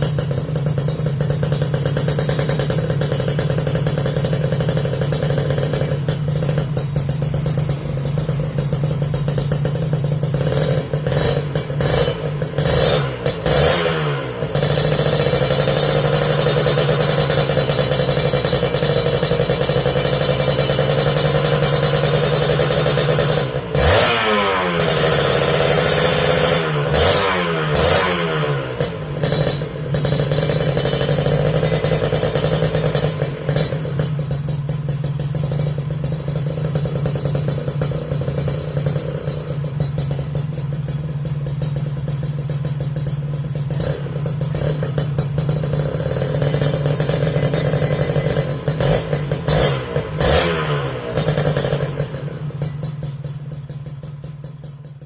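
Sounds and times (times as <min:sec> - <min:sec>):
motorcycle engine idling: 0:00.0 - 0:55.0
motorcycle engine revving: 0:00.0 - 0:55.0.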